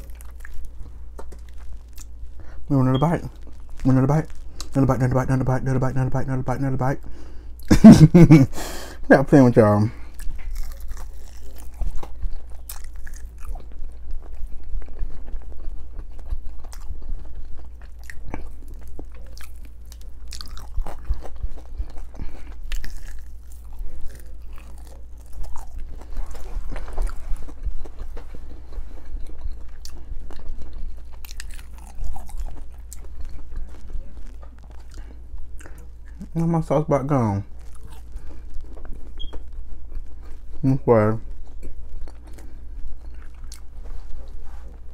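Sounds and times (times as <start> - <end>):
crunchy biting and chewing: 0.0 - 5.3, 10.0 - 44.9
steady low hum: 0.0 - 44.9.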